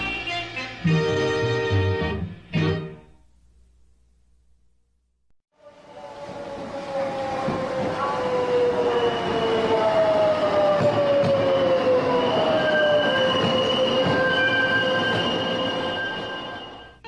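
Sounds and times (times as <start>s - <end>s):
rumble of train cars: 5.6s - 17.0s
train wheels squealing on rails: 5.8s - 17.0s.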